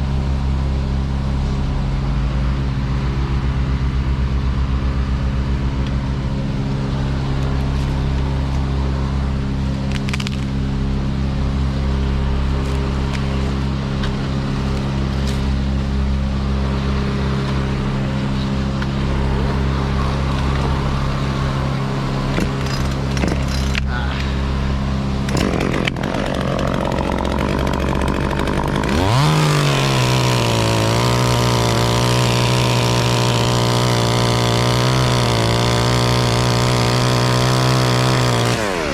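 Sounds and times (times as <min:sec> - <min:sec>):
engine running: 0:00.0 - 0:38.9
engine revving up: 0:25.2 - 0:38.9.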